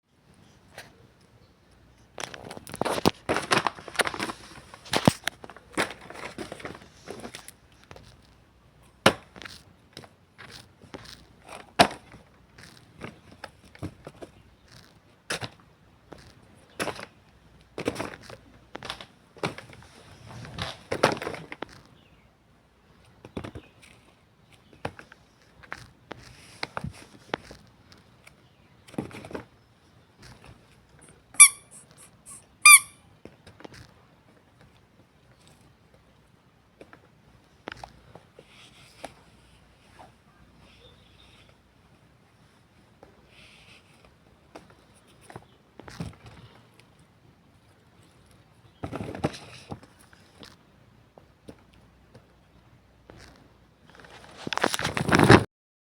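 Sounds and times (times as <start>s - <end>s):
crackly rustling of squishy toy: 1.7s - 22.2s, 22.8s - 55.4s
handling rustling: 2.0s - 22.2s, 53.1s - 55.5s
squeaky toy squeaks: 31.3s - 33.0s.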